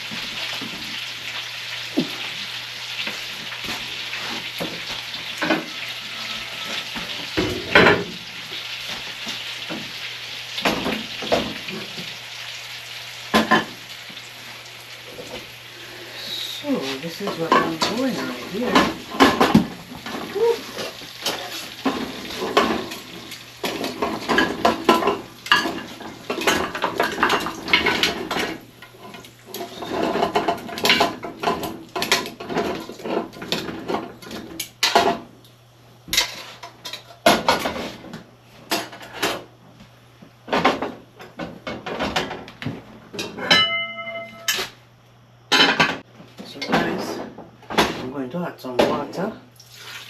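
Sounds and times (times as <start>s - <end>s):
metal pots clinking and scraping: 3.7s - 8.3s, 16.7s - 35.2s, 36.2s - 38.0s, 43.2s - 44.8s.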